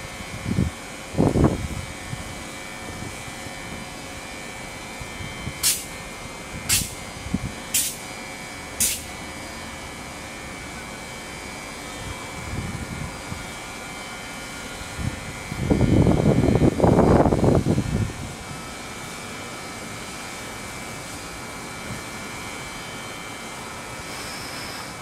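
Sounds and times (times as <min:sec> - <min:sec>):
train equipment hum: 0:00.0 - 0:25.0
short air hisses: 0:05.6 - 0:05.9, 0:06.7 - 0:07.0, 0:07.7 - 0:08.0, 0:08.8 - 0:09.1
thin high whine: 0:07.7 - 0:09.8, 0:21.8 - 0:25.0.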